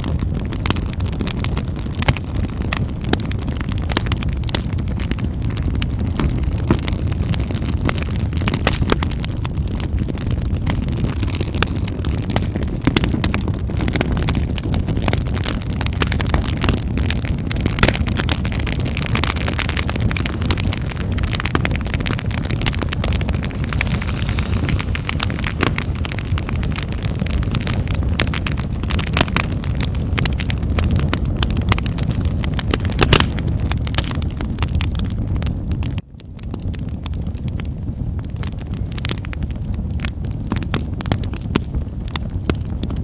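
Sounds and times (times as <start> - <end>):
low rumble of flames: 0.0 - 43.0
wood fire crackling: 0.0 - 43.0
pops and snaps: 32.7 - 33.4.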